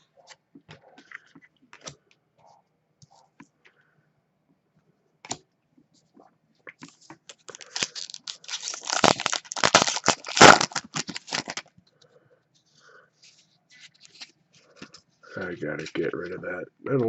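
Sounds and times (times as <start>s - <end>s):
foil wrapper tearing and crinkling: 7.5s - 11.7s.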